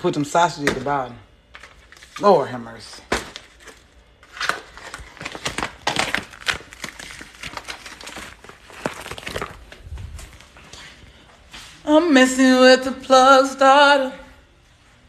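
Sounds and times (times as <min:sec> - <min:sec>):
plastic packaging crinkling: 0:01.5 - 0:10.6.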